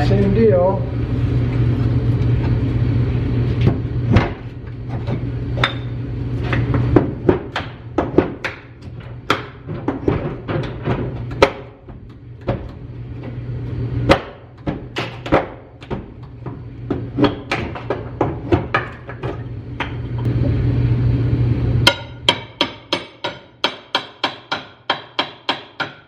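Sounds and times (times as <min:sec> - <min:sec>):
low hum: 0:19.0 - 0:22.5.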